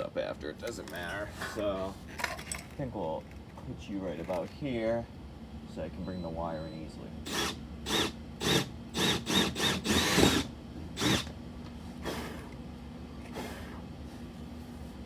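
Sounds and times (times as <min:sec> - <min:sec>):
power drill bursts: 0:07.2 - 0:11.3.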